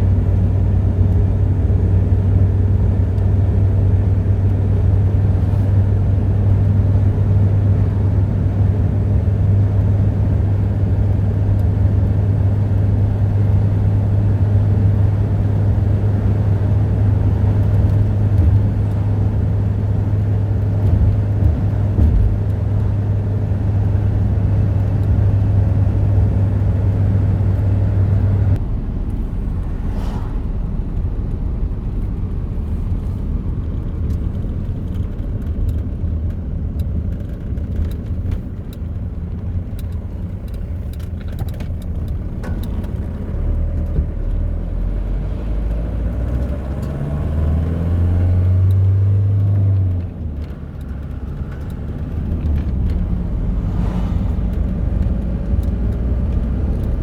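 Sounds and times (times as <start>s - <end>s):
constant low hum: 0.0s - 47.0s, 48.5s - 57.0s
low rumble: 27.6s - 36.4s, 50.0s - 57.0s.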